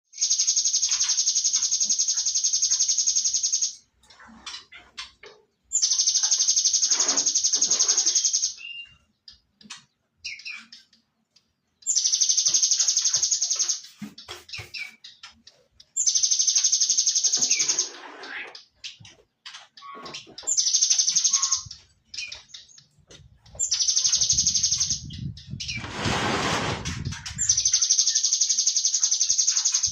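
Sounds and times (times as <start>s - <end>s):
bird chips: 0.1s - 25.9s, 26.7s - 29.9s
bird rapid high trill: 11.9s - 13.9s, 16.0s - 18.0s, 20.6s - 21.7s, 23.6s - 25.9s.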